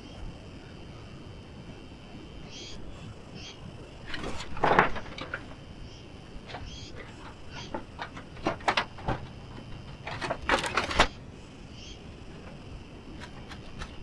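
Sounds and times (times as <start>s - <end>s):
faint insect chirping: 0.0s - 14.0s
clattering knocks and clicks: 4.0s - 11.2s, 12.3s - 14.0s.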